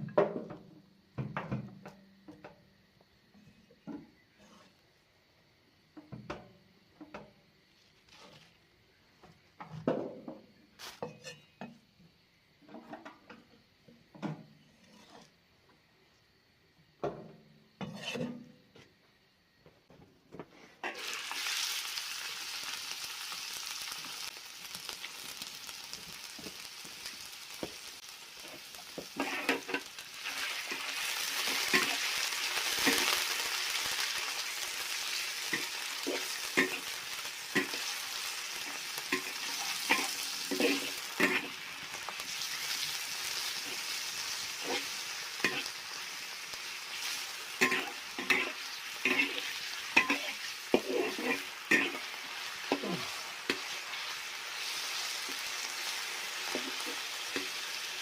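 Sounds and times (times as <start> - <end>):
spatula scraping against wok: 4.2 - 4.9, 7.8 - 8.6, 10.8 - 11.8, 14.2 - 15.4, 17.8 - 18.8, 28.4 - 34.0, 35.1 - 41.8, 42.4 - 46.2, 46.9 - 54.1
pork sizzling in hot oil: 20.8 - 58.0.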